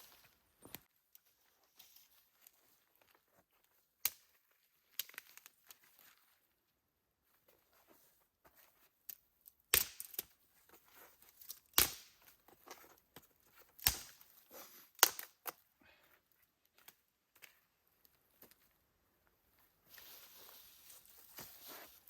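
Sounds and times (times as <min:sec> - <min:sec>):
small snaps and crackles: 0:00.0 - 0:06.4, 0:08.6 - 0:15.7, 0:16.3 - 0:18.7.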